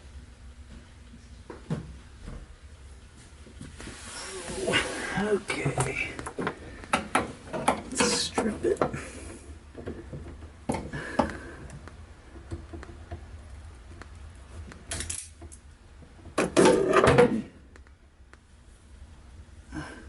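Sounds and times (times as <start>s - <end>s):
wire stripper clicks and clatter: 14.0s - 15.6s.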